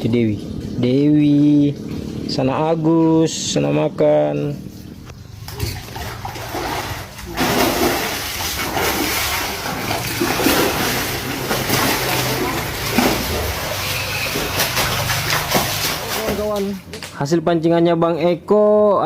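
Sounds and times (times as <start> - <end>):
fish splashing at water surface: 5.3 - 16.9.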